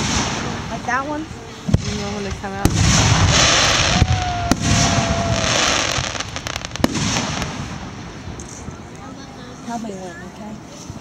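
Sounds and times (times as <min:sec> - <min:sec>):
fireworks bangs: 0:00.0 - 0:08.7
fireworks crackling: 0:00.0 - 0:09.9.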